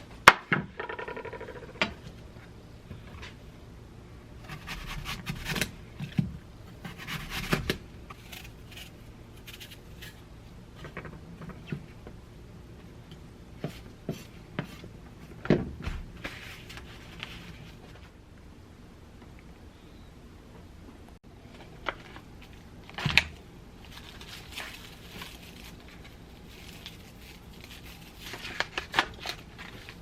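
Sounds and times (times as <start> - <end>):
objects being handled: 21.4 - 30.0.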